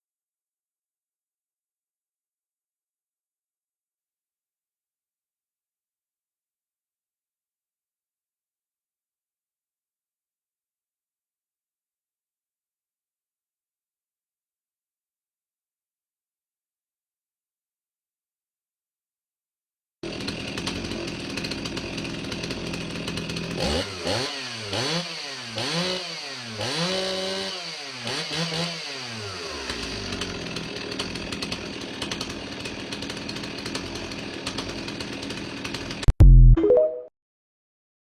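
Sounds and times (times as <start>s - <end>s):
chainsaw revving and idling: 20.0s - 36.1s.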